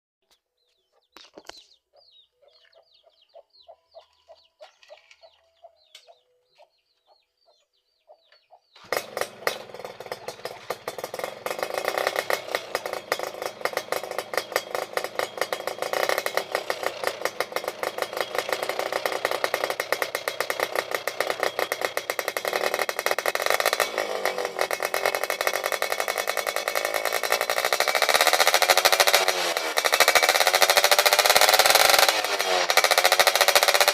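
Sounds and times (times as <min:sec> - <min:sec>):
two-stroke motorcycle engine revving: 0:08.8 - 0:33.9.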